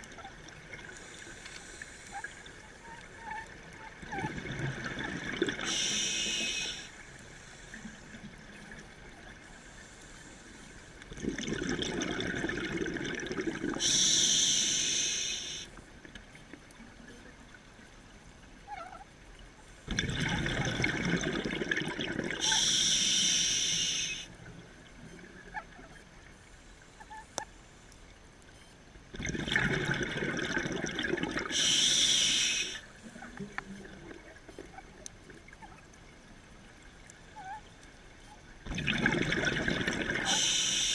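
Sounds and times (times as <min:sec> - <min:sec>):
exhaled bubbles gurgling: 0:02.2 - 0:06.9, 0:11.1 - 0:15.6, 0:19.9 - 0:24.2, 0:29.1 - 0:35.9, 0:38.6 - 0:40.9
regulator hissing inhalation: 0:05.6 - 0:08.0, 0:13.8 - 0:15.7, 0:22.4 - 0:24.3, 0:31.5 - 0:32.8, 0:40.2 - 0:40.9.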